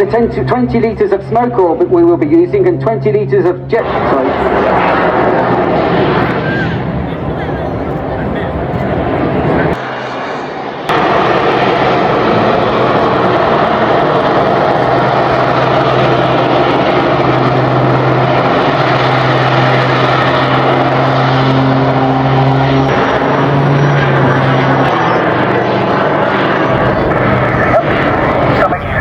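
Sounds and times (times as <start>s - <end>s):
aircraft engine droning: 0.0s - 29.0s
loud rushing noise: 9.6s - 24.8s, 26.7s - 29.0s.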